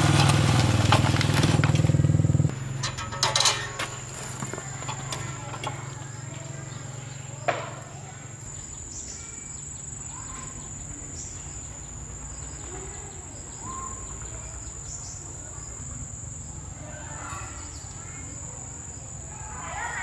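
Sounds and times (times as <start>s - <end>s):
insects buzzing: 0.0s - 19.4s.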